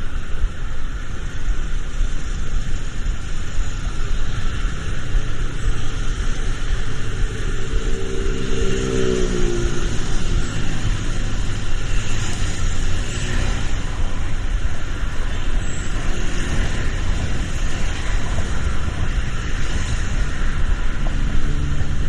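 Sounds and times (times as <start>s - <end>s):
road traffic: 0.0s - 22.0s
vehicle passing by: 7.0s - 14.2s, 16.1s - 22.0s.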